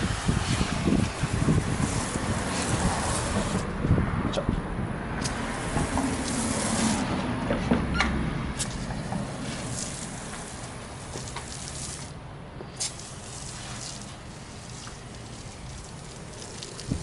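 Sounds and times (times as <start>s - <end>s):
foam sprayer hissing: 0.0s - 3.7s, 5.2s - 7.4s, 8.6s - 17.0s.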